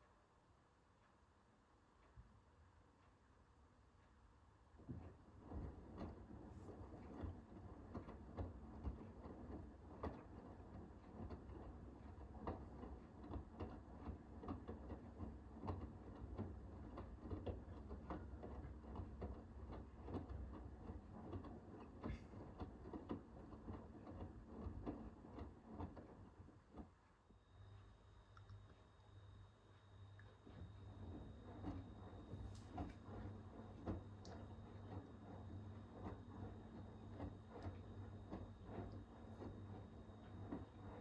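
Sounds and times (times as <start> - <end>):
washing machine motor hum: 2.5 - 41.0.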